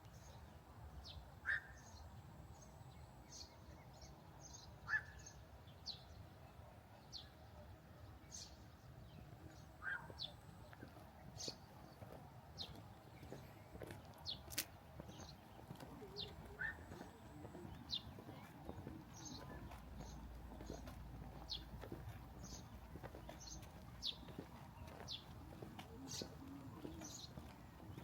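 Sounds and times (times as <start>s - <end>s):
small birds chirping: 0.0s - 28.0s
louder lower bird calls: 1.4s - 2.0s, 4.8s - 5.4s.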